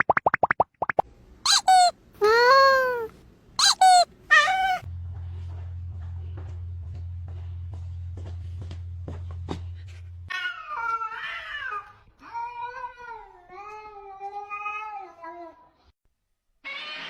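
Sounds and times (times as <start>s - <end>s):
cat yowling: 1.5s - 4.8s.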